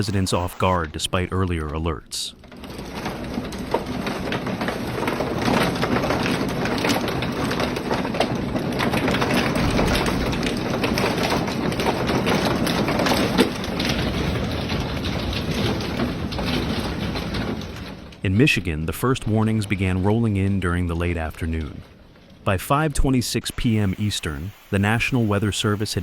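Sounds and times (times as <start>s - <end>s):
rain rushing: 0.0s - 0.9s, 8.3s - 26.0s
hail clattering: 2.4s - 18.2s, 23.4s - 26.0s.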